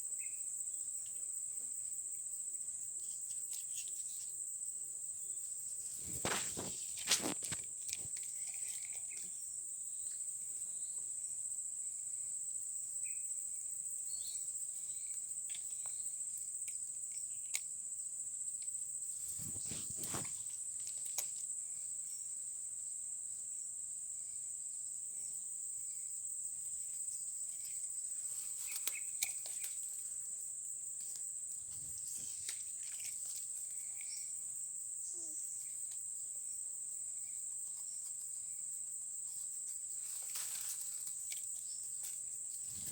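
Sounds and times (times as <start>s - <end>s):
insects trilling: 0.0s - 42.9s
brief rustle: 5.8s - 9.3s, 19.2s - 21.4s, 27.6s - 30.0s, 40.0s - 42.9s.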